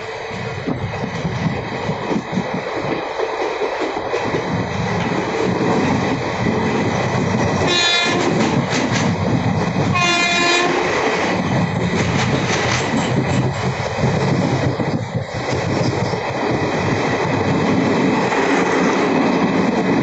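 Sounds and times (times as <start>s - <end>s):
train wheels rumbling and knocking: 0.0s - 20.0s
locomotive horn blasts: 7.7s - 8.4s, 9.9s - 10.8s.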